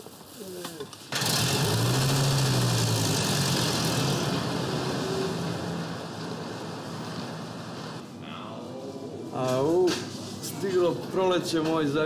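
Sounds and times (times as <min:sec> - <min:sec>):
exhaust hissing rush: 0:01.1 - 0:08.0.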